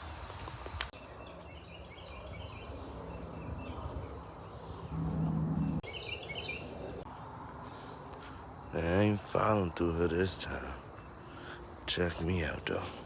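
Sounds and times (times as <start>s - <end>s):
insects trilling: 2.8s - 6.8s
low hum: 2.9s - 6.0s.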